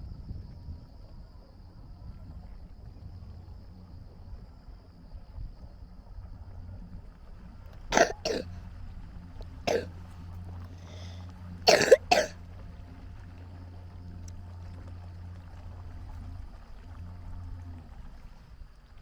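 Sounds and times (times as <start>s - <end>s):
steady low hum: 0.0s - 19.0s
person coughing: 8.0s - 8.5s, 9.7s - 9.9s, 11.7s - 12.3s.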